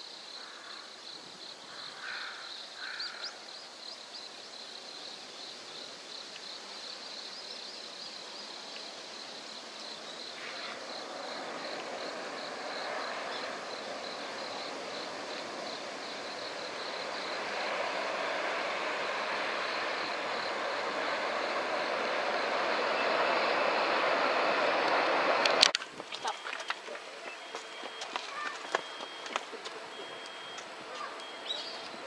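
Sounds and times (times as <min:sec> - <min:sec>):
high-speed train rushing past: 0:09.1 - 0:32.0.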